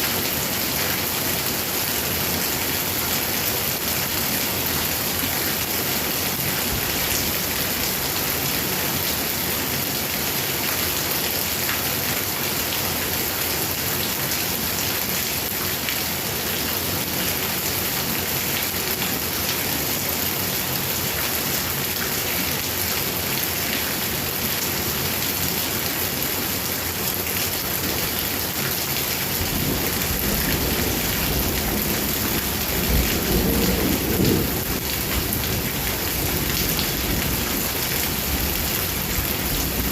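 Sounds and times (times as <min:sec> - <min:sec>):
heavy rain pouring: 0:00.0 - 0:39.9
thunder rumbling: 0:29.4 - 0:37.4.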